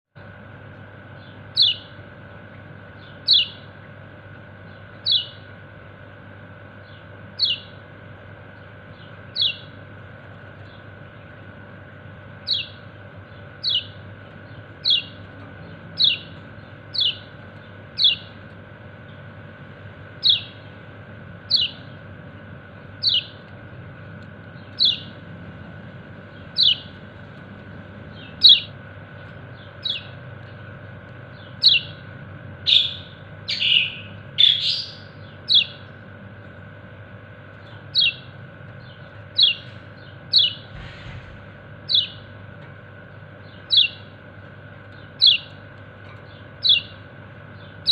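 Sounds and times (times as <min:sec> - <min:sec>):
bird chirping: 0:01.1 - 0:02.0, 0:02.9 - 0:03.7, 0:04.6 - 0:05.6, 0:06.7 - 0:07.8, 0:08.6 - 0:09.8, 0:12.4 - 0:19.4, 0:20.1 - 0:20.8, 0:21.4 - 0:22.1, 0:22.7 - 0:27.3, 0:28.0 - 0:36.0, 0:37.6 - 0:40.9, 0:41.8 - 0:42.4, 0:43.4 - 0:44.2, 0:44.9 - 0:47.9.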